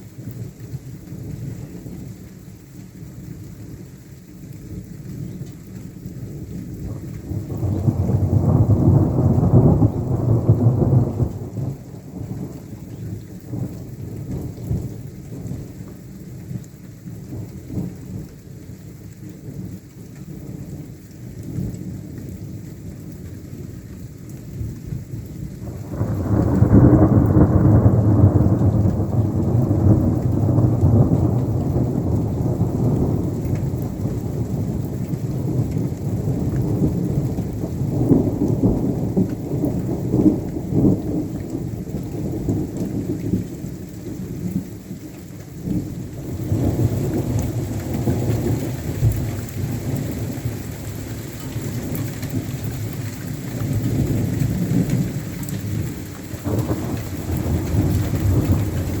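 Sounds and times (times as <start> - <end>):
steady rain: 0.0 - 59.0
thunder rolling: 7.4 - 14.5, 25.7 - 43.8, 53.6 - 59.0.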